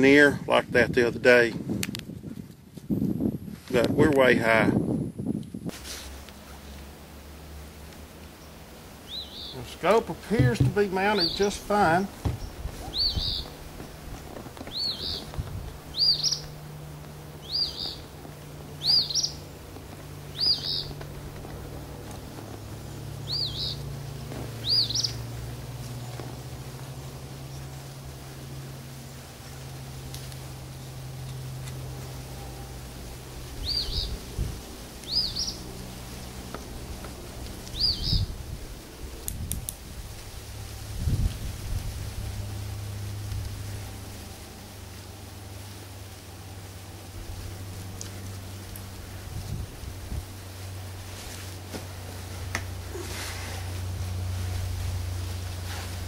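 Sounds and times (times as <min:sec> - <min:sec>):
low steady hum: 0:00.0 - 0:56.0
bird chirping: 0:08.3 - 0:13.9, 0:14.6 - 0:16.6, 0:17.4 - 0:18.1, 0:18.8 - 0:19.6, 0:20.2 - 0:21.0, 0:23.2 - 0:23.9, 0:24.6 - 0:26.2, 0:33.6 - 0:34.2, 0:35.0 - 0:35.7, 0:37.7 - 0:38.3
low thumps on microphone: 0:10.3 - 0:10.9, 0:12.2 - 0:15.7
songbird whistled calls: 0:12.4 - 0:13.6, 0:14.7 - 0:15.3, 0:15.9 - 0:16.5, 0:17.4 - 0:18.0, 0:18.8 - 0:19.4, 0:20.3 - 0:20.9, 0:23.2 - 0:23.8, 0:24.6 - 0:25.2, 0:33.6 - 0:34.2, 0:35.1 - 0:35.6, 0:37.7 - 0:38.3.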